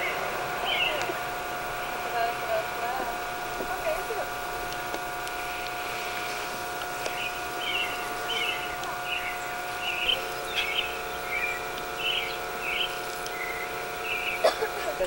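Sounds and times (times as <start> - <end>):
small bird chirping: 0.0 - 1.1, 7.0 - 14.4
steady hum: 0.0 - 15.0.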